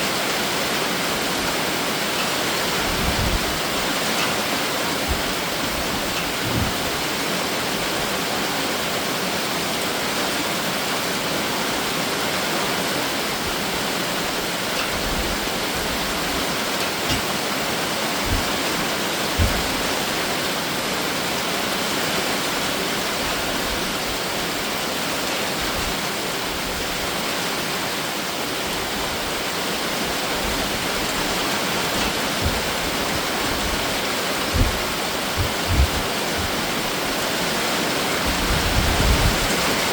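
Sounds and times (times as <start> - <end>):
heavy rain pouring: 0.0 - 39.9
soft low thuds: 18.2 - 18.6, 19.4 - 19.8.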